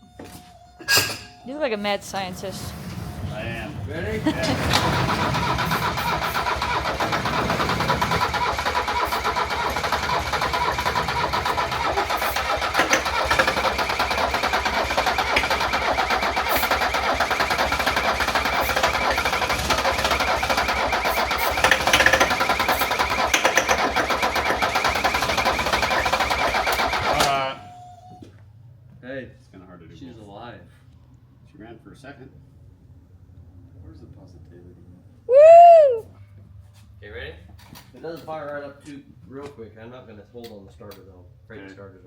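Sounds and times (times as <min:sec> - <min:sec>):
diesel engine cranking: 0:01.8 - 0:28.2.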